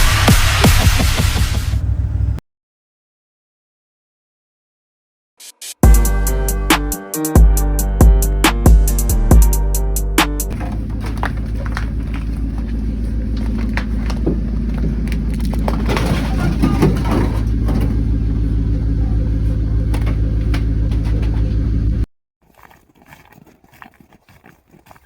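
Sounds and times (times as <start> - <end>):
engine droning: 0.1 - 2.4, 10.2 - 22.1.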